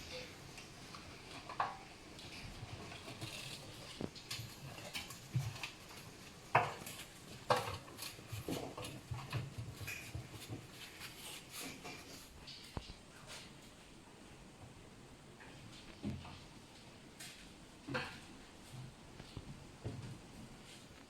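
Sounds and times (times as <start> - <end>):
animals scrabbling with light taps: 0.0 - 14.0.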